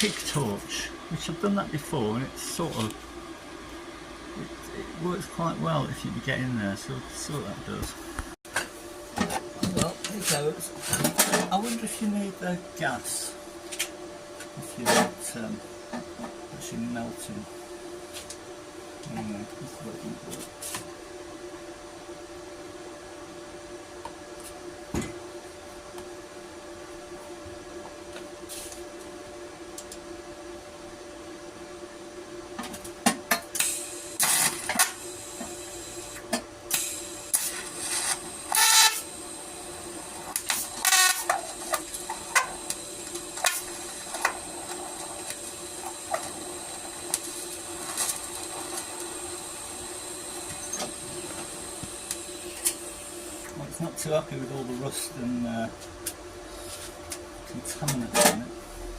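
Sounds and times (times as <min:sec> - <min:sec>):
welding arc electrical hum: 0:00.0 - 0:58.9
arc crackling and spitting: 0:33.5 - 0:53.7.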